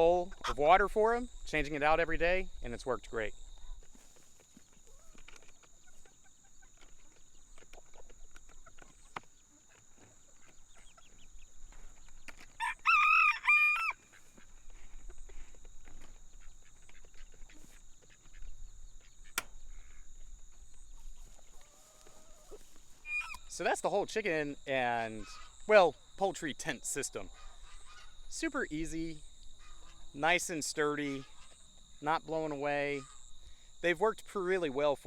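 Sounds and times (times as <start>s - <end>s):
chickens clucking: 0.0s - 1.2s, 3.6s - 25.7s, 26.3s - 33.2s
rooster crowing: 12.6s - 14.0s.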